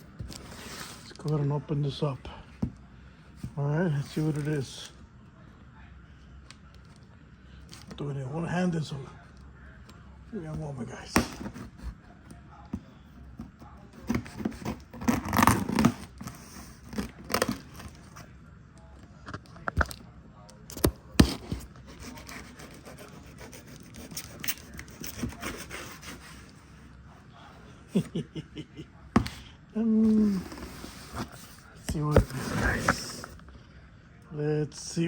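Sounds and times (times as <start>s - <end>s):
package being torn open: 14.2s - 18.1s.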